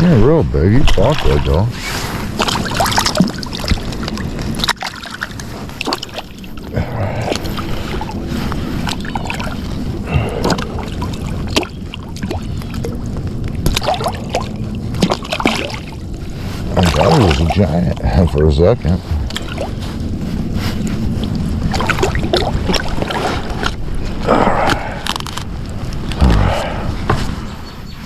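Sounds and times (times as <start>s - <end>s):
water sloshing and splashing: 0.6s - 27.9s
handling knocks and clicks: 24.6s - 26.2s.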